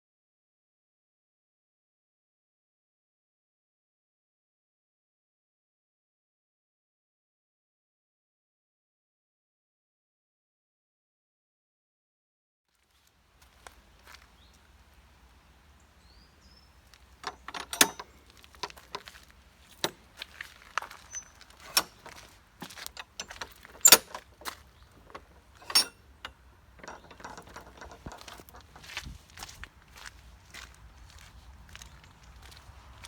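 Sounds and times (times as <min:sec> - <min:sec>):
footsteps crunching on stones: 0:12.7 - 0:25.7, 0:26.8 - 0:33.0.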